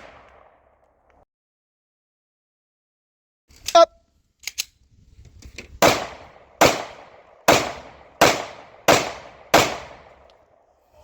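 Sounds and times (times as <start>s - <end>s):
pistol shots: 5.8s - 10.3s.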